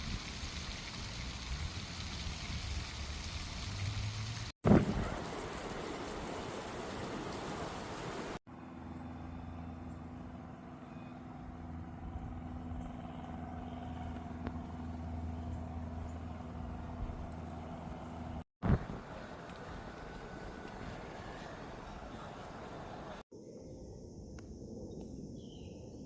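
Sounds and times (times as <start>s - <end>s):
low hum of distant traffic: 0.3s - 23.3s
steady rushing hiss: 18.6s - 23.2s.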